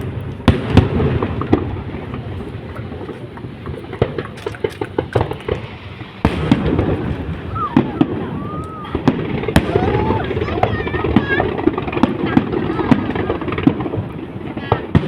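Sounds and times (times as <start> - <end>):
crackling firework pops: 0.0 - 15.0
firework bangs: 0.0 - 15.0.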